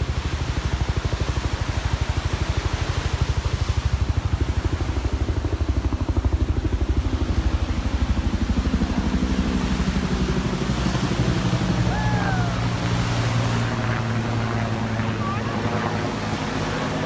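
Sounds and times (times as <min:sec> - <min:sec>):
pitched hum: 0:10.4 - 0:17.0.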